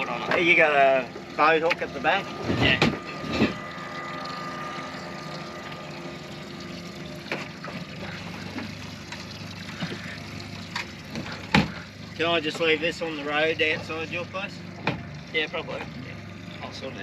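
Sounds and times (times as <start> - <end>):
boat motor running: 0.0 - 17.0
faint whine: 0.0 - 17.0
light knocks against hull: 10.7 - 11.8, 14.8 - 15.1.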